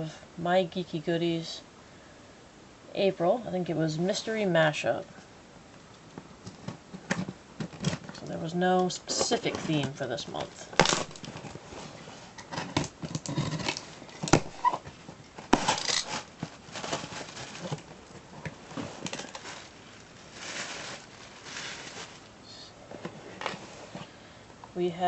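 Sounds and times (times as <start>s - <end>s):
packaging rustling and crinkling: 6.2s - 8.3s, 9.1s - 24.1s.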